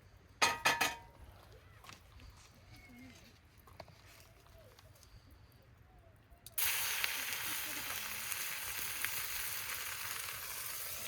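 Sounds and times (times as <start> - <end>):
steak sizzling on griddle: 6.6 - 11.0.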